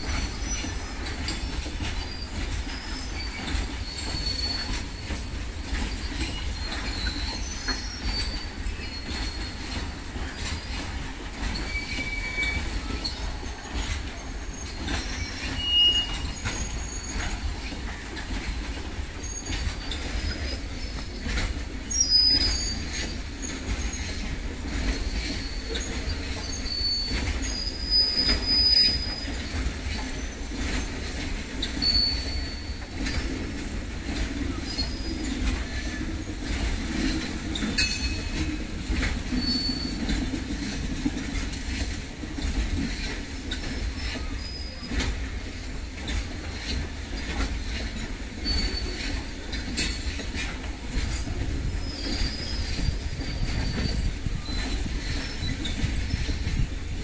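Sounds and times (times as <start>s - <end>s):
freight train wagons rumbling: 0.0s - 57.0s
wheels clicking over rail joints: 0.0s - 57.0s
high-pitched wheel squeals: 2.0s - 5.2s, 11.6s - 13.2s, 14.5s - 17.3s, 25.2s - 29.5s, 31.7s - 33.1s, 39.3s - 40.1s.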